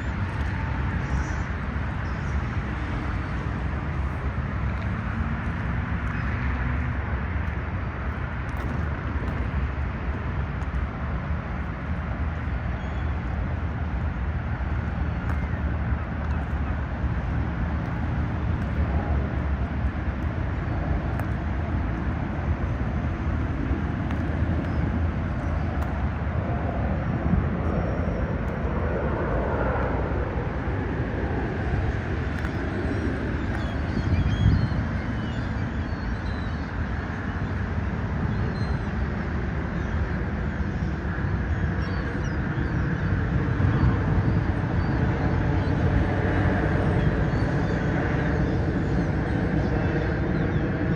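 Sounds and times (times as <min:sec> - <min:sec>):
distant engine rumble: 0:00.0 - 0:38.8.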